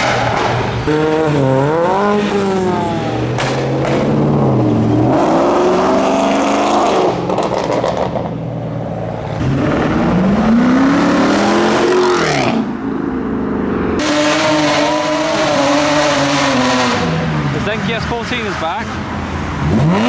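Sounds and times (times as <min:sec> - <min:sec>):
car engine revving hard: 0:00.0 - 0:08.1, 0:09.4 - 0:12.8, 0:13.8 - 0:20.0.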